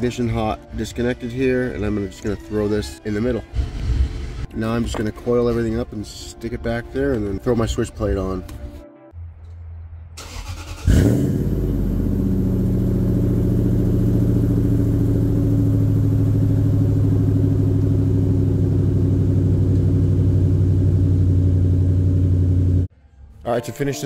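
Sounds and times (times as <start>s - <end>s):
car engine cold starting: 10.2s - 22.9s
car engine idling: 10.2s - 22.9s.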